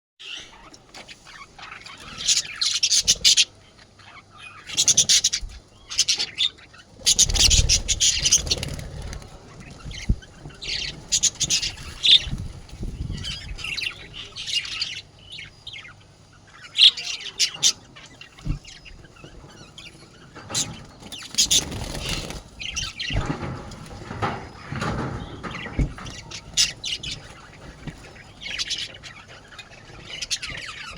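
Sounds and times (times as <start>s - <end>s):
budgerigars squawking and chattering: 0.2s - 30.9s.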